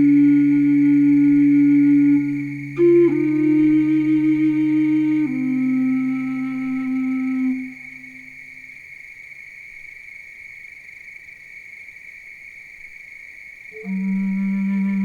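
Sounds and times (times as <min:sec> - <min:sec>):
low held synth note: 0:00.0 - 0:08.0
cricket-like insect trill: 0:00.0 - 0:15.0.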